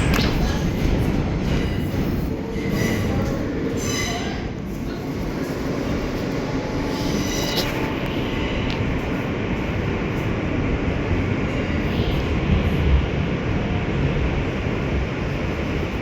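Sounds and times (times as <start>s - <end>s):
subway train rumble: 0.0s - 16.0s
high wheel squeal: 3.7s - 4.5s, 6.9s - 8.0s.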